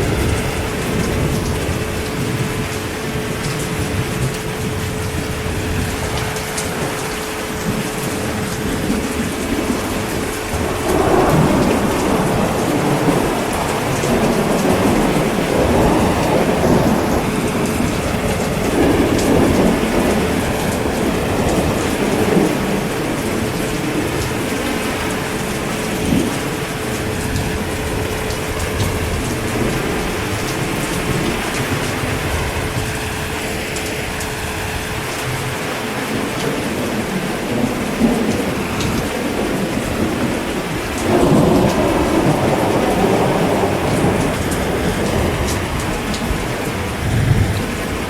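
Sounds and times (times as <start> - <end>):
heavy rain falling: 0.0 - 48.0
thunder rolling: 0.0 - 48.0.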